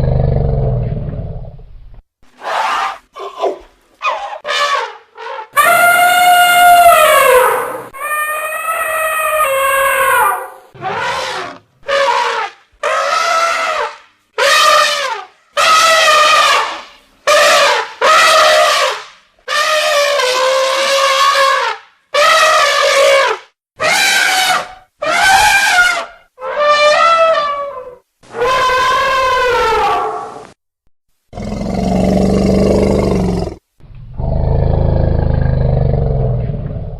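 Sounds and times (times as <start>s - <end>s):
elephants trumpeting: 4.1s - 30.4s.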